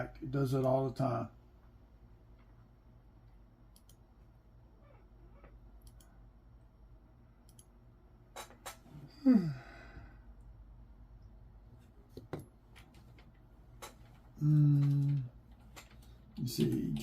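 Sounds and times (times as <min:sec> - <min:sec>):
man sighing: 0:09.1 - 0:10.4.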